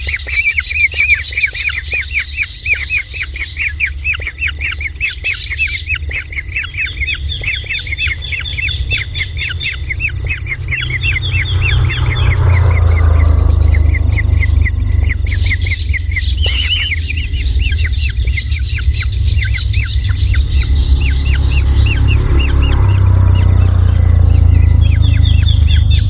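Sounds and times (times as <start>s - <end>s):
bird calling in sharp notes: 0.0s - 26.0s
insect trilling: 0.0s - 26.0s
low rumble: 6.4s - 26.0s.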